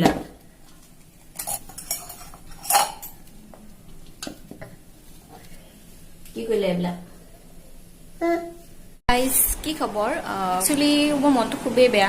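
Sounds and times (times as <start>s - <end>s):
utensils and dishes clinking: 1.3s - 3.3s.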